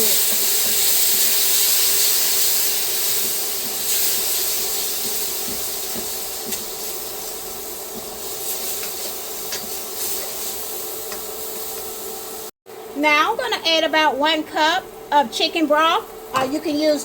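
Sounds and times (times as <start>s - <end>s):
garlic sizzling in a frying pan: 0.0s - 12.5s.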